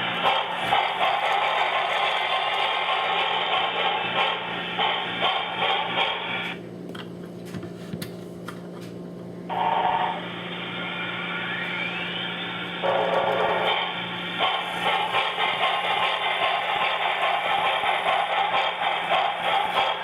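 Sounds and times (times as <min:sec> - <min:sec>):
model train wheels clicking on track: 0:00.0 - 0:06.2, 0:14.4 - 0:20.0
steam engine sound from small speaker: 0:00.0 - 0:06.6, 0:09.5 - 0:20.0.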